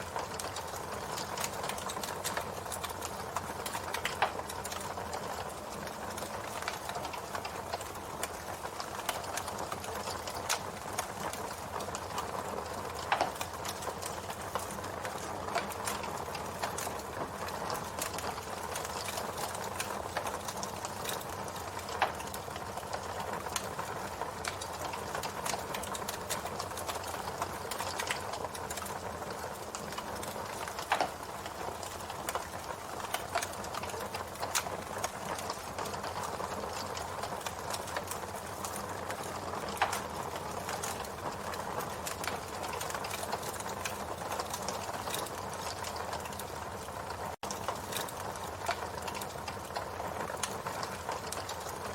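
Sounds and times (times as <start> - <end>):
campfire crackling: 0.0 - 51.9
sharp pops of burning wood: 24.4 - 46.5, 47.6 - 49.6.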